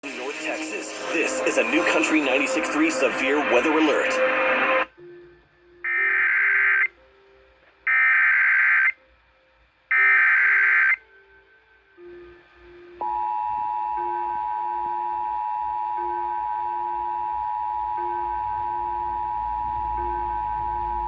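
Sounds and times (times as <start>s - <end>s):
data tone bursts: 7.9s - 8.9s, 9.9s - 11.0s
steady two-tone attention signal: 13.0s - 21.0s.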